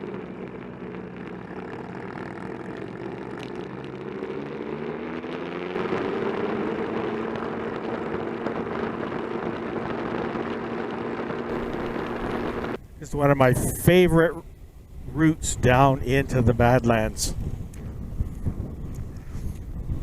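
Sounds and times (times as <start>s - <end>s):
motorcycle engine running: 0.0s - 12.8s
wind rush: 5.8s - 20.0s.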